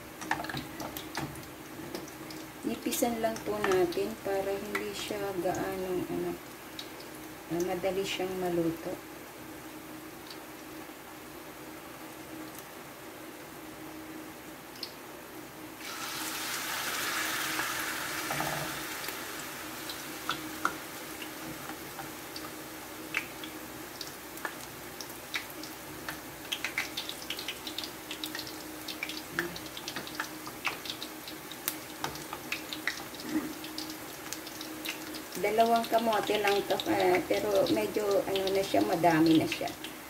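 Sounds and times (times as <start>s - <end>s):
oil crackling and popping: 0.1s - 2.5s, 15.8s - 40.0s
food sizzling in hot oil: 15.8s - 40.0s.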